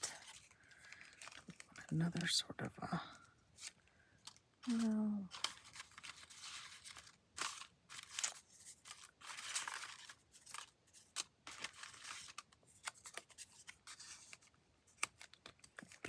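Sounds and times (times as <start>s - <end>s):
paper rustling: 0.0s - 2.4s, 3.6s - 16.0s
sharp paper clicks: 3.6s - 16.0s.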